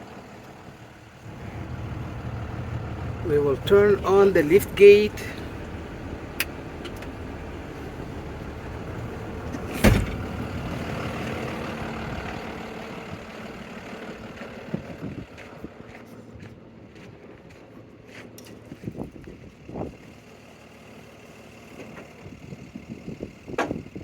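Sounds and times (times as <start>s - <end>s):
diesel engine idling: 0.0s - 18.1s, 18.9s - 24.0s
hydraulic pump motor humming: 1.2s - 12.6s
loud clunk: 9.5s - 10.4s.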